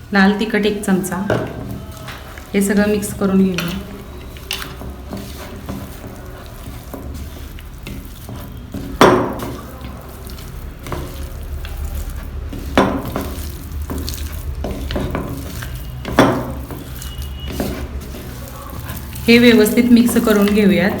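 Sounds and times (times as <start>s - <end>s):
wet stirring in a bowl: 0.0s - 21.0s.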